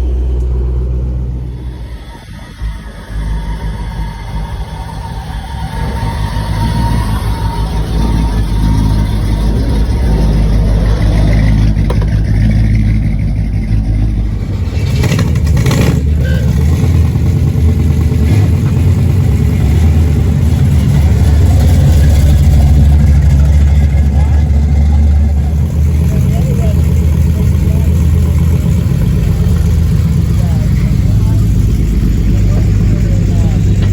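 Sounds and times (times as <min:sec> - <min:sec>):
cars driving past loudly: 0:00.0 - 0:33.9.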